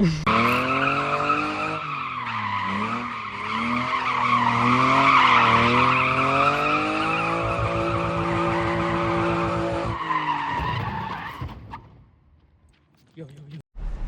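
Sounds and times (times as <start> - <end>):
car engine high revs: 0.3 - 10.6.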